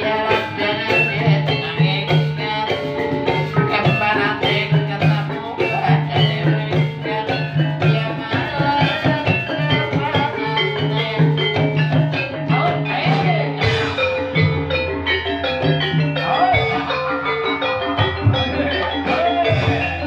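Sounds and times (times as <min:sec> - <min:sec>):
live percussion music: 0:00.0 - 0:20.0.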